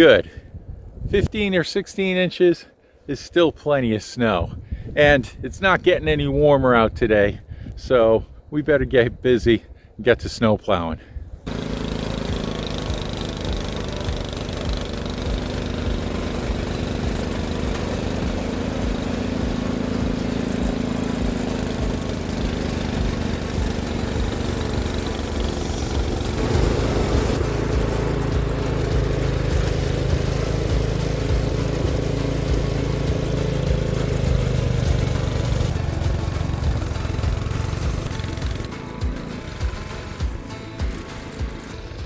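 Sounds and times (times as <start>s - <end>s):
snow-clearing machine engine: 11.4s - 42.0s.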